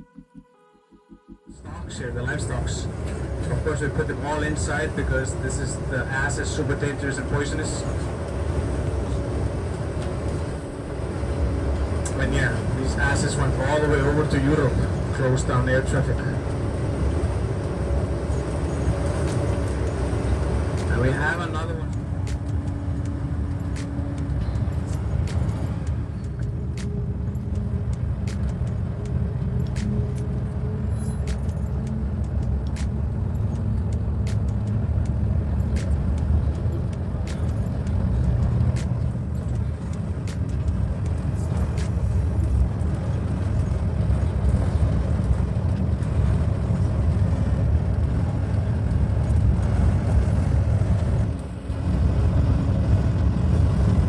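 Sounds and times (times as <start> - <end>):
bus engine and road rumble: 0.0 - 54.0
faint clicks and rattles: 11.5 - 54.0.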